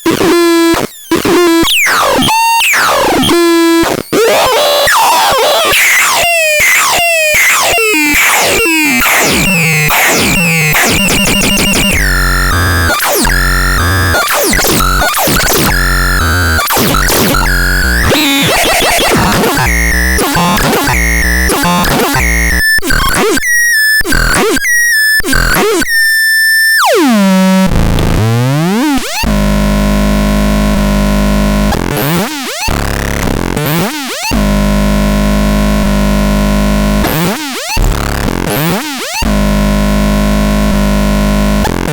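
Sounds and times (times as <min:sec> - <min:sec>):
synthesizer tones and pitch sweeps: 0:06.0 - 0:22.6.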